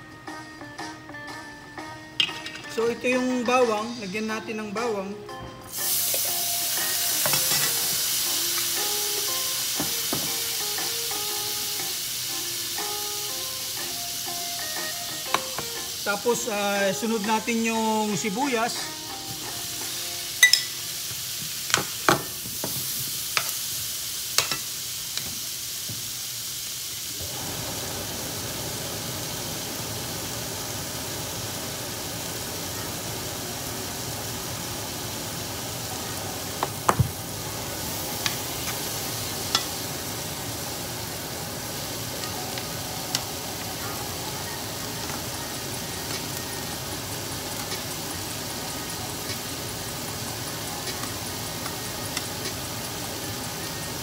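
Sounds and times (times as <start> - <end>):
beef frying: 5.7 - 54.0
onions sizzling in frying pan: 5.7 - 54.0
metal utensils clinking on pans: 7.2 - 8.0, 20.4 - 20.9, 24.4 - 24.7, 39.4 - 39.9.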